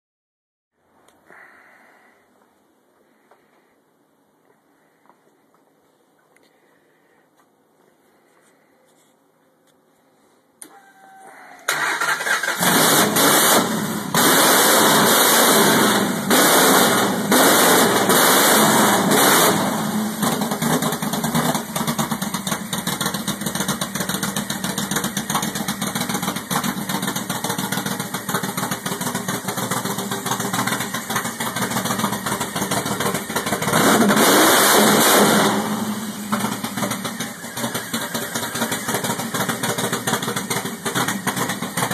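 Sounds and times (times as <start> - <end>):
engine cranking and starting: 11.7 - 16.0, 20.2 - 41.9
engine idling: 11.7 - 41.9
engine revving: 11.7 - 41.9.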